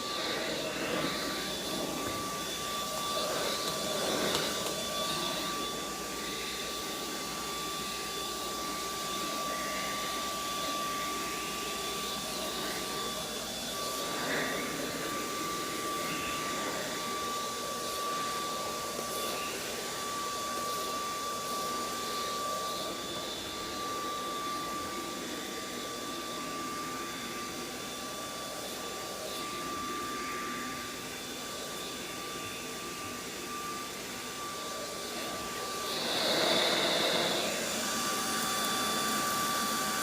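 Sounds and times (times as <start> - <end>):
vacuum cleaner running: 0.0 - 40.0.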